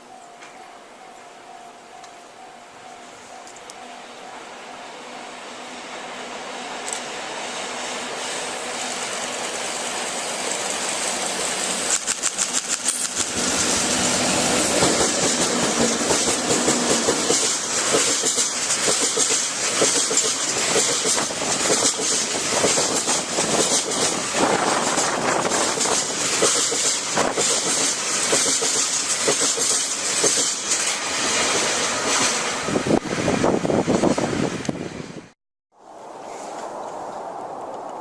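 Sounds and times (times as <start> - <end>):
freight train passing: 0.0 - 38.0
wheels clicking over rail joints: 10.4 - 13.5, 14.7 - 32.4.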